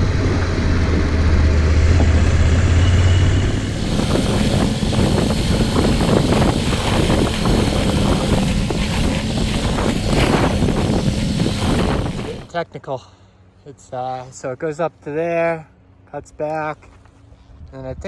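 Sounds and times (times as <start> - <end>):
motorcycle engine running: 0.0 - 12.5
wind rumbling on microphone: 0.0 - 12.6.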